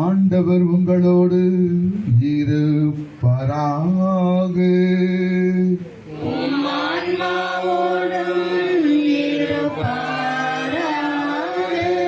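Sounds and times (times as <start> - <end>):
congregation chanting: 6.1 - 12.0.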